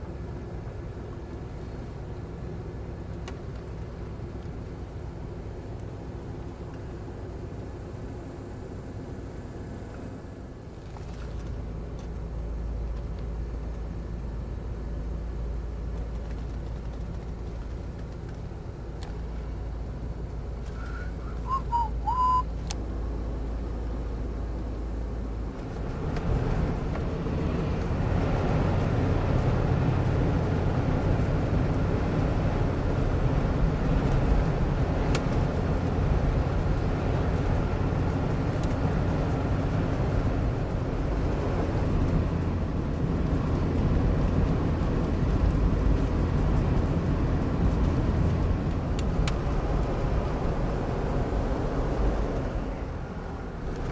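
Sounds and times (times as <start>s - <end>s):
car engine and road rumble: 0.0s - 53.9s
brief high chirps: 21.4s - 22.5s.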